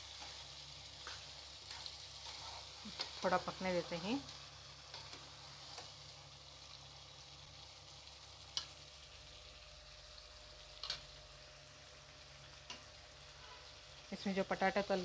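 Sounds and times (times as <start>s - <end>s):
spatula stirring in a pan: 0.0s - 6.7s, 12.6s - 13.9s
food sizzling in a pan: 0.0s - 15.0s.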